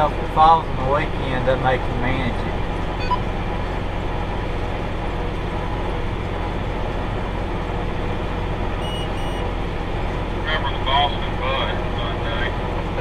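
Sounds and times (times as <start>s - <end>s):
tractor engine droning: 0.0s - 13.0s
short high beeps: 3.0s - 3.2s, 8.8s - 9.5s.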